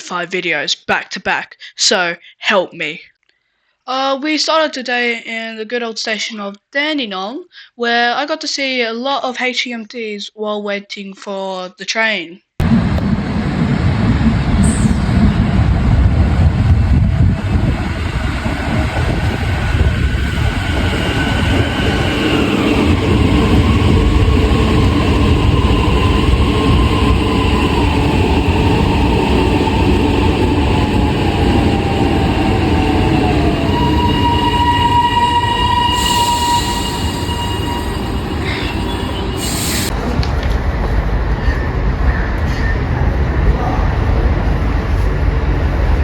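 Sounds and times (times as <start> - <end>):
electric train rumbling: 12.6 - 46.0
train motor whine: 16.6 - 40.3.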